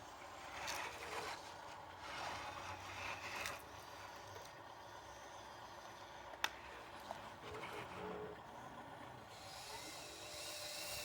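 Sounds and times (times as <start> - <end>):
faint low engine hum: 0.0 - 11.0.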